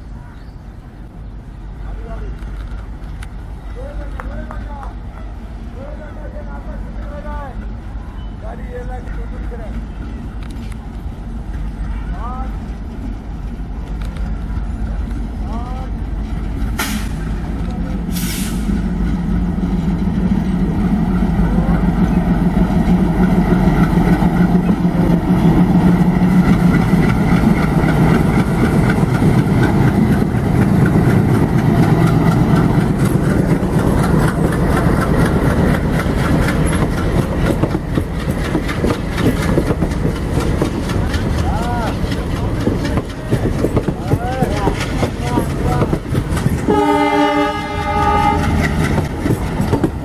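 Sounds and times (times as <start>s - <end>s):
diesel locomotive engine drone: 0.0s - 50.0s
wheels clattering over rail joints: 15.2s - 50.0s
short sharp hisses: 16.8s - 17.3s, 18.1s - 18.8s.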